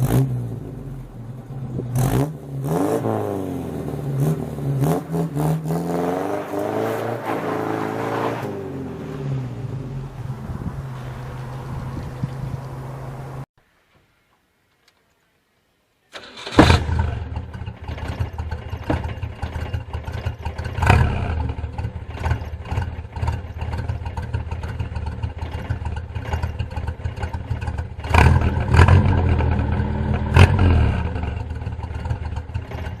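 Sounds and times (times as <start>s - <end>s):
car engine rumbling and revving: 0.0s - 13.5s, 16.2s - 33.0s
car engine starting: 0.0s - 13.5s, 16.1s - 33.0s.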